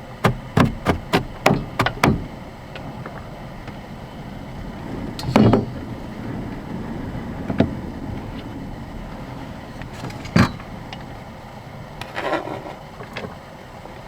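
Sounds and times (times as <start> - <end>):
dull thump: 0.2 - 2.4.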